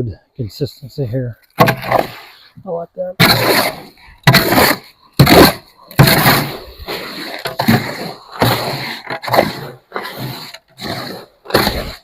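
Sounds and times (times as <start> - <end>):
hoe scraping wet concrete: 3.2 - 12.0.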